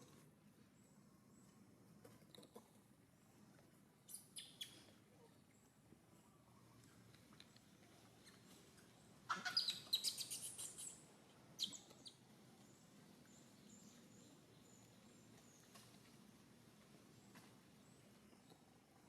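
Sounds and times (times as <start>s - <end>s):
high-pitched chirping calls: 9.3s - 11.0s, 11.6s - 12.2s.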